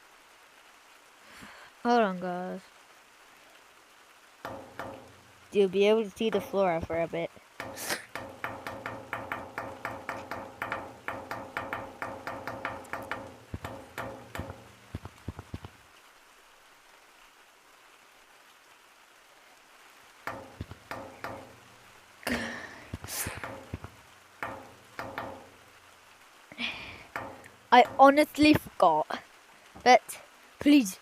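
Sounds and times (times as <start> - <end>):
rapid light tapping: 4.4 - 15.8, 20.3 - 28.8.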